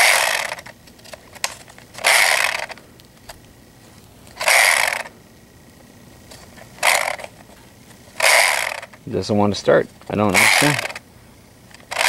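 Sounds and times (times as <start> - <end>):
chainsaw pull-start cord rasping: 0.0 - 0.7, 1.9 - 2.8, 4.4 - 5.1, 6.8 - 7.3, 8.2 - 9.0, 10.3 - 11.0, 11.7 - 12.0.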